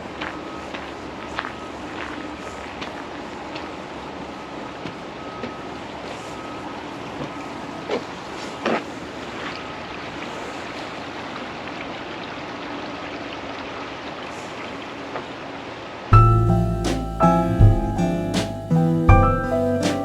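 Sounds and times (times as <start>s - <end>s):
piano music: 16.1s - 20.0s.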